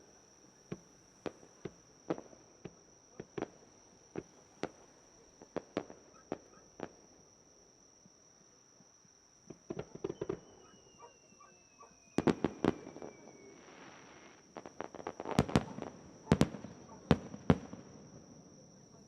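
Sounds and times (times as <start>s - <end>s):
fireworks crackle: 9.5s - 11.0s, 12.2s - 18.2s
faint falling whistle: 9.8s - 14.4s
fireworks bangs and cracks: 12.2s - 18.4s.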